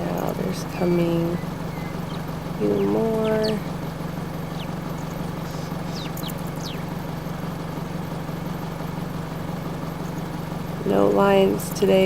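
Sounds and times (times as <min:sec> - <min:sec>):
vehicle engine idling: 0:00.0 - 0:12.0
high falling chirps: 0:00.8 - 0:07.2.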